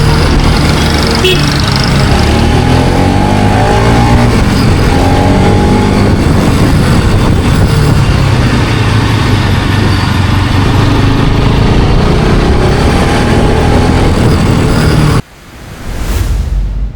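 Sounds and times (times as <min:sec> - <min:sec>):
motorcycle engine running: 0:00.0 - 0:02.9.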